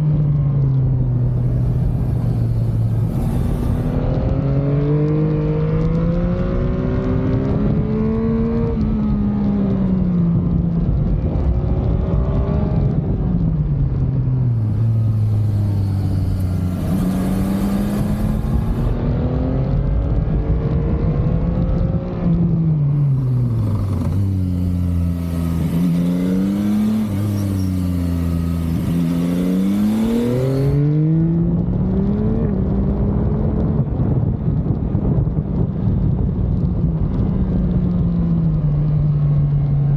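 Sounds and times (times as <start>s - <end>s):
motorcycle engine revving: 0.0s - 33.8s
wind hiss on microphone: 1.2s - 4.2s, 14.3s - 19.1s.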